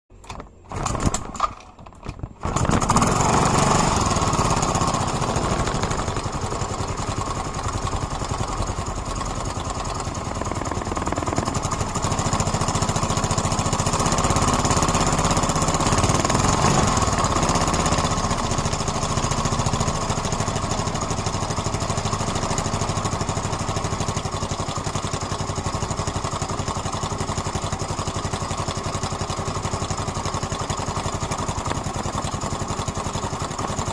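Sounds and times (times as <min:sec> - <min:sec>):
scooter engine running: 0:00.7 - 0:33.9
engine ticking noise: 0:06.8 - 0:14.1.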